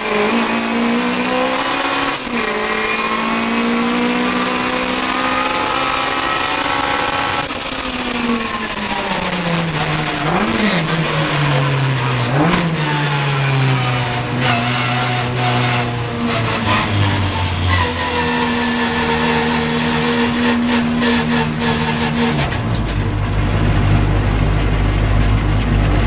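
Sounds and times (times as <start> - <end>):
race car engine revving: 0.0 - 26.0.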